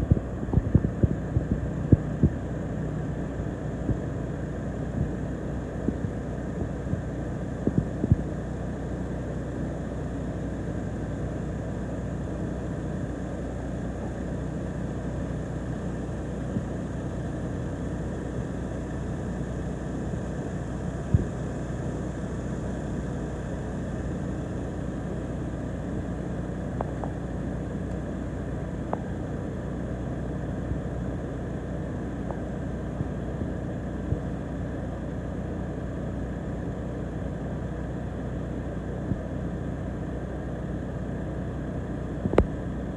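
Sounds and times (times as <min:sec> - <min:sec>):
crane engine running: 0:00.0 - 0:42.9.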